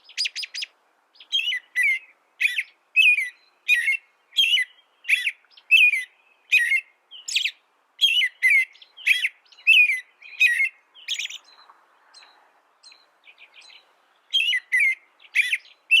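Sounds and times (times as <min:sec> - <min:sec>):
songbird chirping and twittering: 0:00.0 - 0:16.0.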